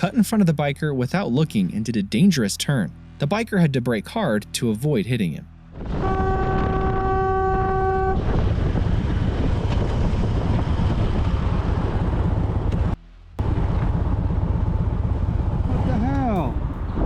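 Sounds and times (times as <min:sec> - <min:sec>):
road noise: 0:00.0 - 0:17.0
motorcycle engine: 0:05.6 - 0:17.0
wind buffeting: 0:05.7 - 0:17.0
vehicle horn: 0:05.9 - 0:08.4.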